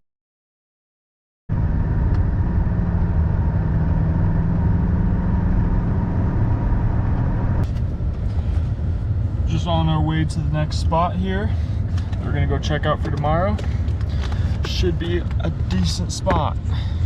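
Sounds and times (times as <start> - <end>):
car engine and road noise: 1.5 - 17.0
constant low hum: 1.5 - 17.0.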